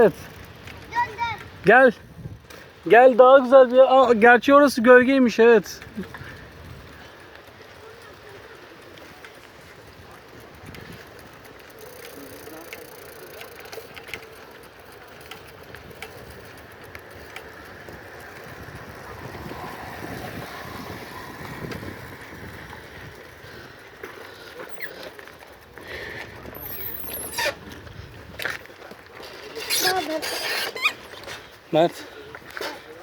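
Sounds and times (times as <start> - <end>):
bicycle clicks and rattles: 0.0 - 33.0
bicycle tyres rolling: 0.0 - 33.0.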